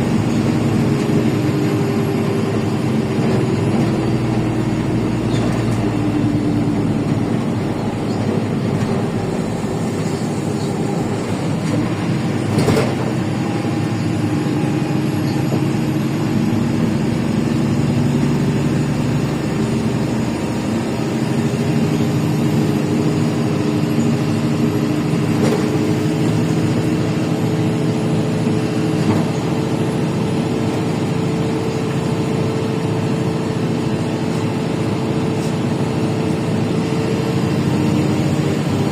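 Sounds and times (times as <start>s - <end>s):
bus diesel engine: 0.0s - 38.9s
road noise: 0.0s - 38.9s.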